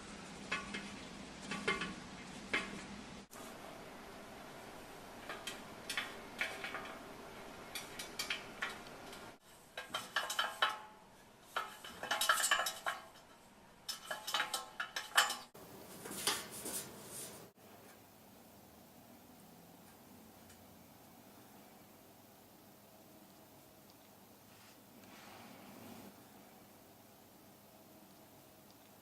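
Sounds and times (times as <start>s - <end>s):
hard objects clinking and clattering: 11.5s - 15.6s.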